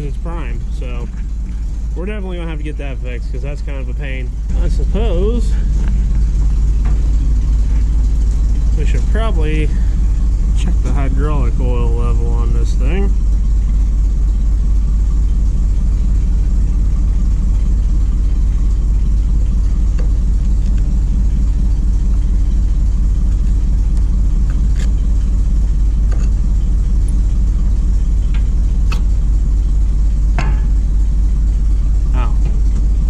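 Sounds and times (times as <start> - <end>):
engine idling: 0.0 - 33.0.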